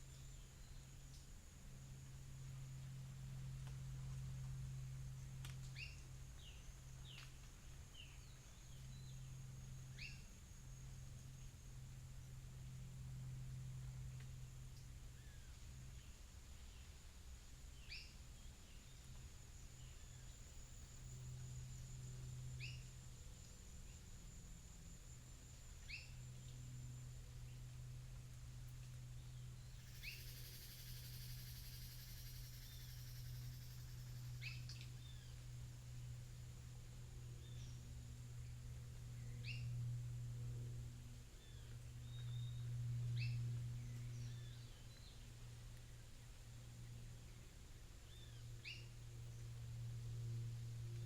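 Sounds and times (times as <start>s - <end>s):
low steady hum: 0.0s - 51.0s
high-pitched insect buzz: 29.8s - 34.8s.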